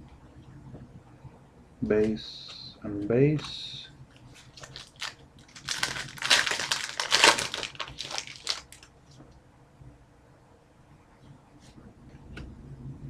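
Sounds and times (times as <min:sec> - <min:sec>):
cards and packaging rustling: 0:03.3 - 0:08.9.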